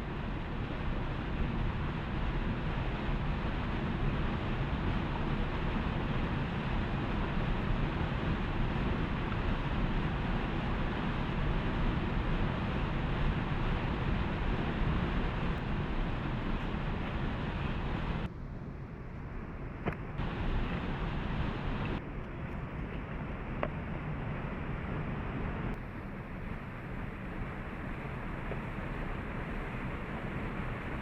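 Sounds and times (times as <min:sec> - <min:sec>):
waterfall rushing: 0:20.2 - 0:22.0.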